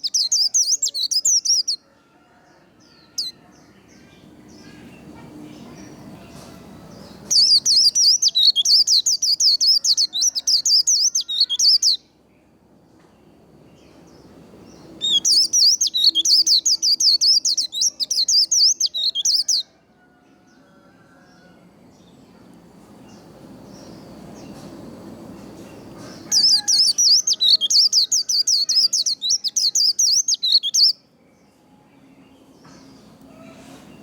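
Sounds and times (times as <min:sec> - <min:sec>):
bird twittering song: 0:00.0 - 0:01.8, 0:07.0 - 0:12.0, 0:13.9 - 0:19.6, 0:25.6 - 0:31.0.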